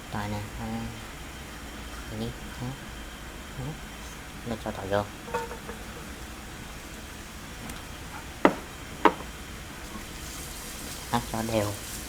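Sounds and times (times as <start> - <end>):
metal utensil knocking on pan: 5.3 - 6.1, 8.5 - 9.3
garlic sizzling in hot oil: 8.1 - 12.0.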